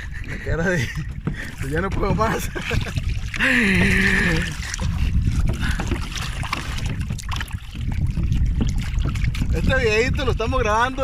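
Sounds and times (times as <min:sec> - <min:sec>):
water rushing along hull: 0:00.0 - 0:11.0
wind buffeting microphone: 0:00.0 - 0:11.0.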